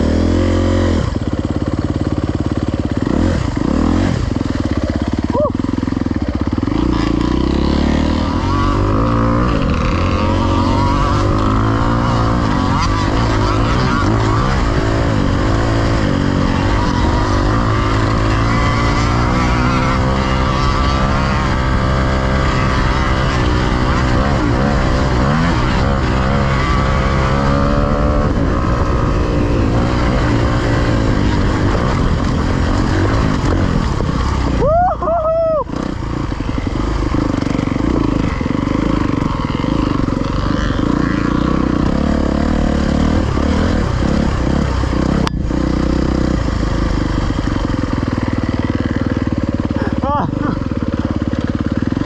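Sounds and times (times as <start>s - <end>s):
dirt bike engine running hard: 0.0s - 52.0s.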